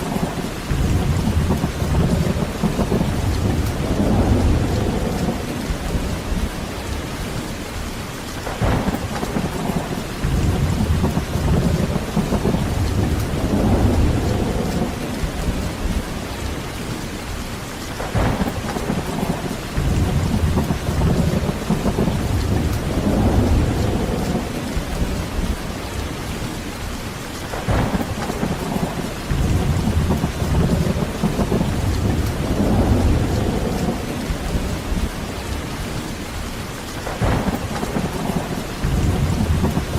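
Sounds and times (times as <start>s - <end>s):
sharp thunder cracks: 0.0s - 6.6s, 8.4s - 16.2s, 18.0s - 25.6s, 27.5s - 35.2s, 37.0s - 39.9s
rolling thunder: 0.0s - 17.4s, 18.0s - 26.9s, 27.5s - 39.9s
heavy rain: 0.0s - 39.9s.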